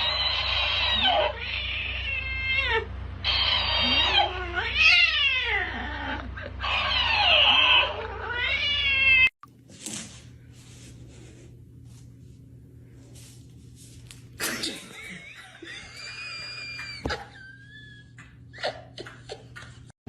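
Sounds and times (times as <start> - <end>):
cat yowling: 0.0 - 9.3.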